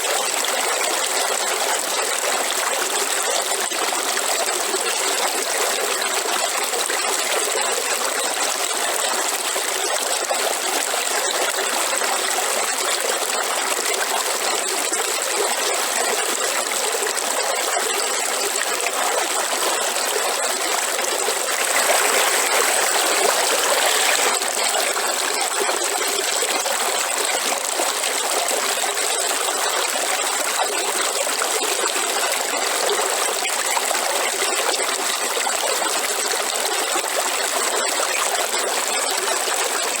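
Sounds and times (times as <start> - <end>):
waterfall rushing: 21.1 - 25.3.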